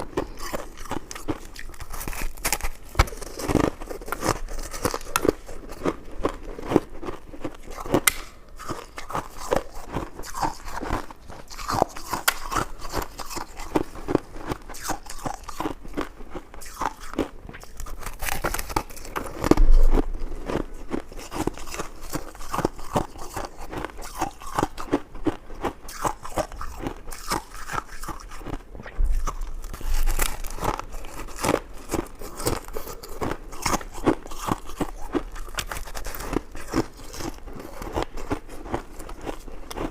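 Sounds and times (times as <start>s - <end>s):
chewing with wet clicks: 0.0s - 39.9s
thud: 19.4s - 21.0s.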